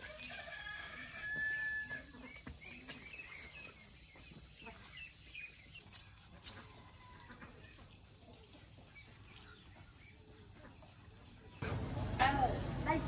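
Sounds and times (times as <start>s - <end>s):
bird chirps: 2.1s - 10.8s.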